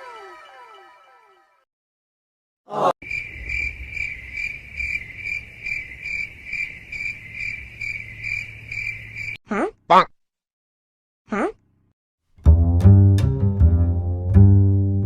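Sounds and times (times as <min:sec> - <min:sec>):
cricket chirping: 0:03.0 - 0:09.4.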